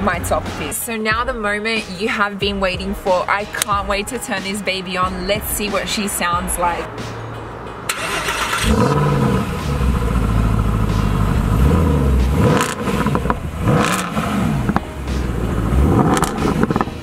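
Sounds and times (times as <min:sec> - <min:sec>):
car engine starting: 0:07.0 - 0:17.0
car engine revving: 0:07.9 - 0:17.0.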